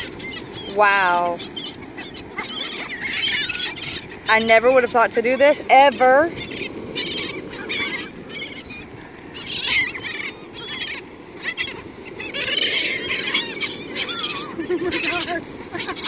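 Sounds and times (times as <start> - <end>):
seagulls squawking: 0.0 - 16.0
surf washing: 0.0 - 16.0.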